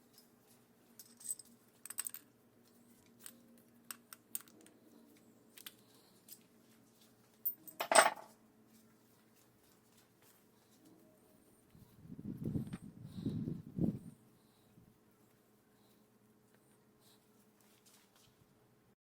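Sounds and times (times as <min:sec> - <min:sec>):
metal parts and tools clinking: 0:01.0 - 0:02.3, 0:03.0 - 0:04.7, 0:07.4 - 0:08.3
tools clattering: 0:07.4 - 0:08.3.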